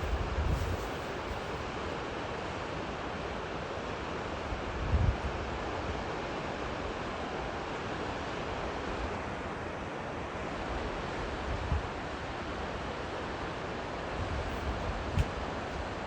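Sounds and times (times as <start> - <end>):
wind thumps on microphone: 0.0 - 1.5, 14.5 - 15.4.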